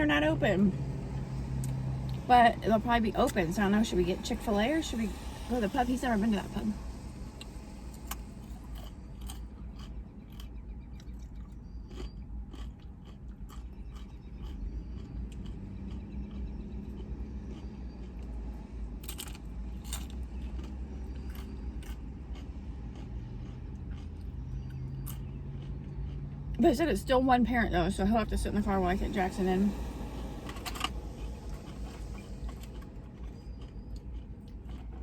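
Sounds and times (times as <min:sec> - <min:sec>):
food crunching: 0:07.4 - 0:26.6, 0:29.7 - 0:35.0
person chewing food: 0:07.4 - 0:26.6, 0:29.7 - 0:35.0.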